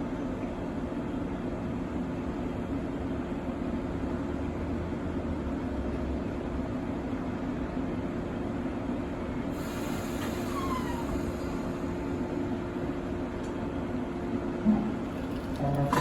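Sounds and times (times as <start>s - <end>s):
faint brief squeals: 10.0s - 11.8s.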